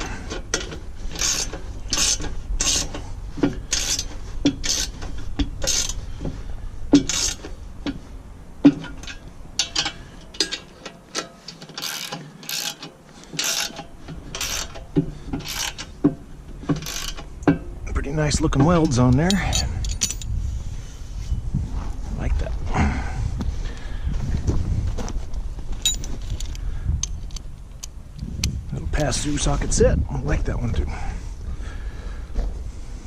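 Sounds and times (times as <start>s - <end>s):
ratchet wrench clicking: 0.5s - 2.9s, 3.7s - 5.0s, 5.6s - 6.0s, 7.0s - 7.4s, 9.0s - 14.8s, 15.4s - 15.9s, 16.8s - 17.2s.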